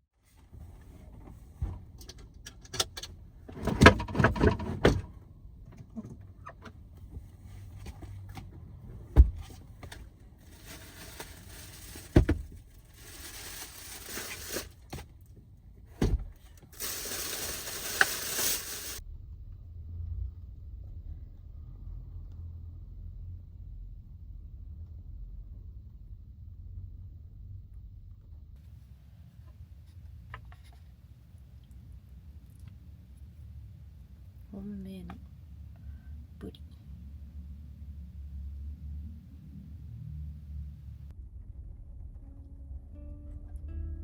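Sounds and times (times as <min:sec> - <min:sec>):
rustling hiss: 0:16.8 - 0:19.0.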